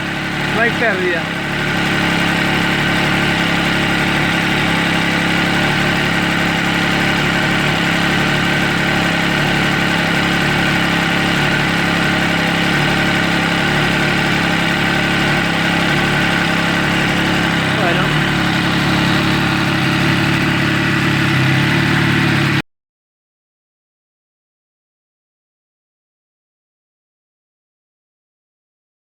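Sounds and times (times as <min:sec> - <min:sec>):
motorcycle engine idling: 0:00.0 - 0:22.6.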